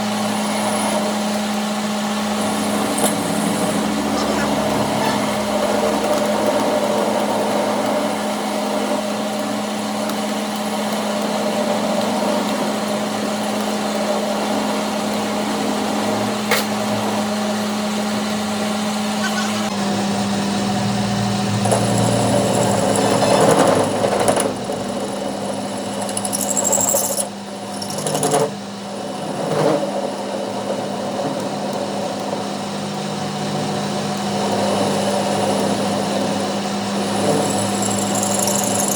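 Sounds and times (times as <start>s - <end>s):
machine humming: 2.1s - 8.2s.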